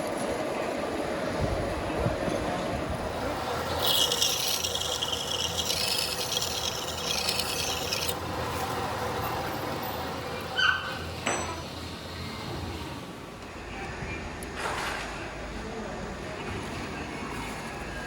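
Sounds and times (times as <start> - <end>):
workshop hum: 0.1 - 14.0
harsh scrape on metal: 3.2 - 11.3.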